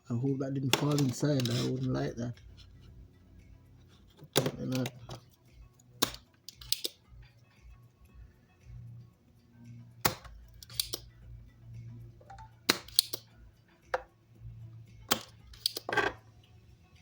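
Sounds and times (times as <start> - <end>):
hand tools clicking and tapping: 0.6 - 3.0, 3.8 - 7.2, 10.0 - 11.2, 12.2 - 14.2, 14.8 - 16.2.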